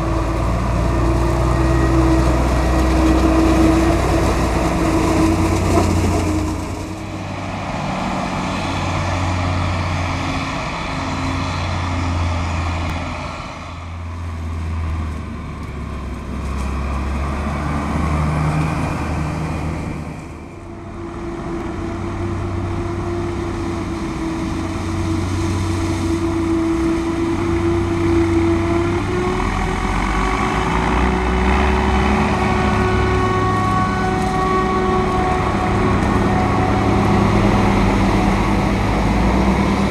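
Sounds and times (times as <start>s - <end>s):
diesel farm machinery running: 0.0s - 39.9s.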